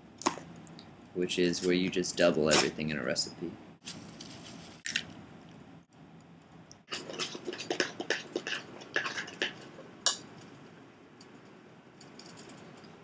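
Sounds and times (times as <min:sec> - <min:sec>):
spoon scraping batter in bowl: 0:06.9 - 0:09.8.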